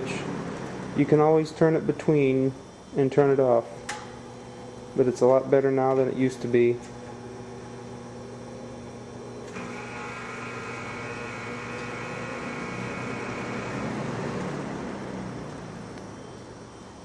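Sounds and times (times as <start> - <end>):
fan motor buzzing: 0.0 - 17.0
high-pitched whine: 0.0 - 17.0.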